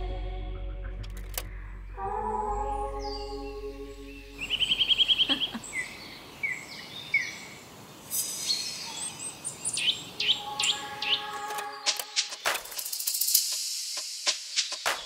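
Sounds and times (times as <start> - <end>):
faint background hiss: 2.4 - 15.0
birds singing: 3.0 - 12.5.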